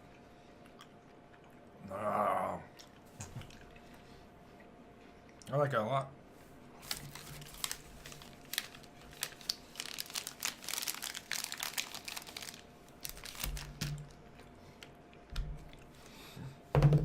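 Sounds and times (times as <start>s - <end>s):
plastic wrapper crinkling: 6.8s - 14.9s.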